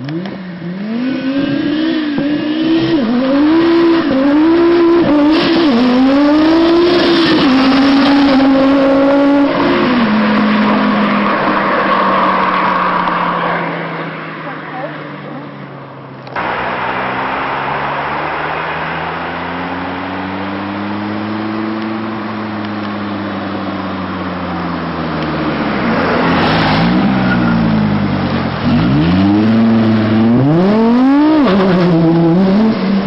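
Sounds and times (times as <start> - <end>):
car engine revving hard: 0.2 - 11.6, 16.4 - 22.2, 25.7 - 33.0.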